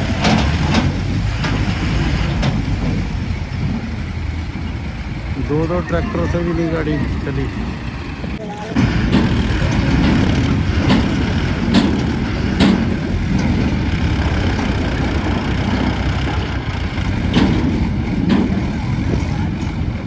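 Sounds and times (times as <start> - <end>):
tractor diesel engines running: 0.0 - 20.0
sharp knocks: 8.8 - 16.2.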